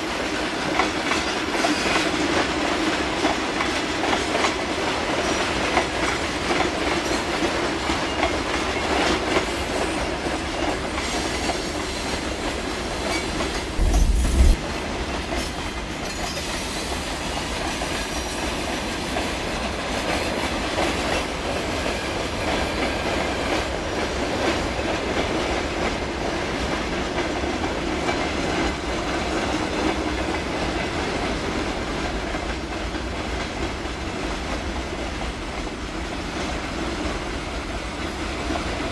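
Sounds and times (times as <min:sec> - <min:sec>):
train wheels clicking over rail joints: 0:00.1 - 0:38.8
loud low thump: 0:13.8 - 0:14.6.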